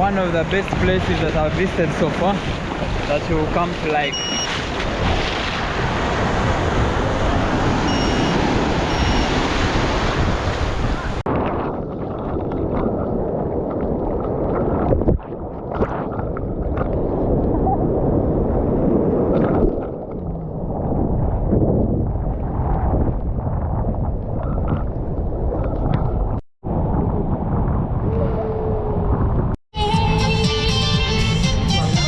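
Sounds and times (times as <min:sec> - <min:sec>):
ocean surf washing in: 0:00.0 - 0:11.3
wind buffeting microphone: 0:00.0 - 0:29.6.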